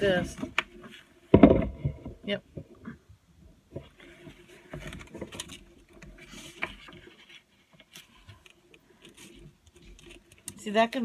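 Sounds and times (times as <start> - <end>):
paper pages rustling: 3.9 - 10.5.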